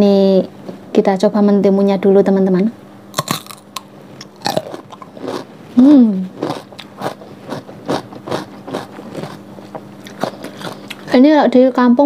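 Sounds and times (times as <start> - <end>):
biting and chewing cucumber: 3.1 - 5.5, 6.1 - 11.2
person humming: 5.8 - 6.3.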